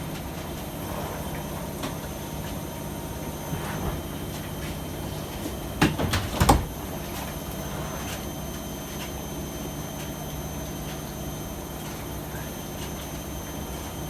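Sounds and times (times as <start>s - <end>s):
washing machine humming: 0.0s - 14.0s
washing machine clunks: 5.4s - 7.1s.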